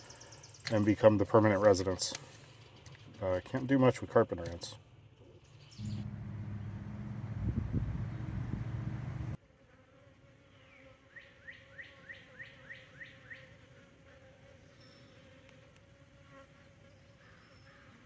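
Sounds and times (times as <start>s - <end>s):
bird calling rising notes: 5.6s - 9.4s
low rumble: 5.8s - 9.4s
honeybees buzzing: 5.8s - 18.0s.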